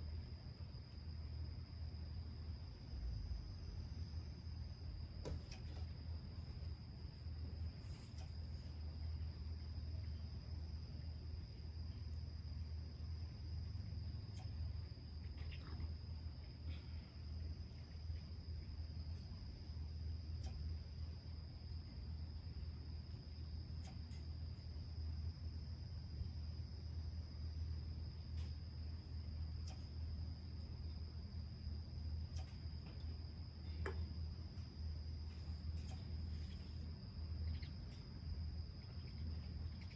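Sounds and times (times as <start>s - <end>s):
insects trilling: 0.0s - 39.9s
pulsing insect chorus: 0.0s - 39.9s.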